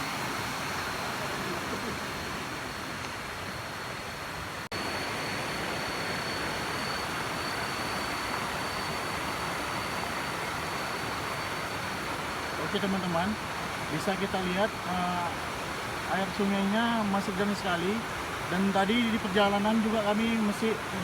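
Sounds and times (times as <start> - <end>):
rushing river water: 0.0 - 21.0
thin high tone: 4.7 - 13.4.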